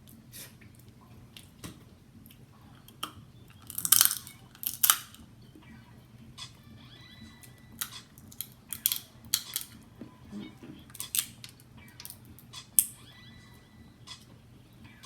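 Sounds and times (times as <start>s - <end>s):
crab shells cracking: 2.9s - 5.2s, 7.8s - 9.8s, 10.9s - 13.0s.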